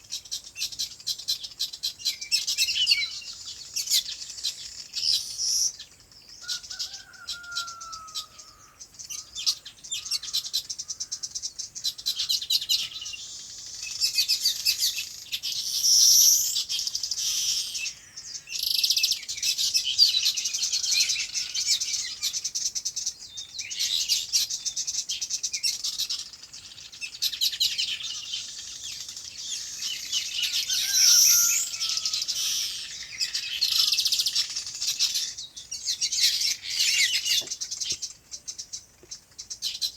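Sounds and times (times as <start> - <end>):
flock of small birds chirping: 0.0 - 39.9
lower falling bird call: 27.3 - 38.2.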